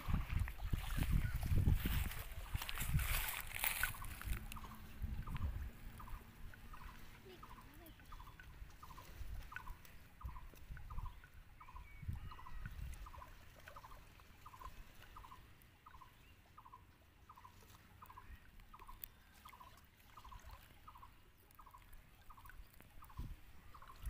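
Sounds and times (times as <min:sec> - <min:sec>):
hands sloshing in shallow water: 0:00.0 - 0:11.3, 0:17.4 - 0:24.0
bird calling in pulsed notes: 0:03.6 - 0:24.0.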